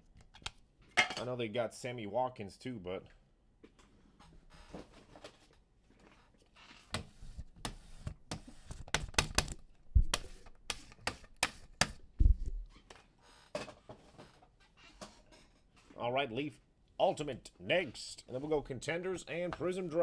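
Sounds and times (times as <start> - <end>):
cards clicking and tapping: 7.7 - 12.0.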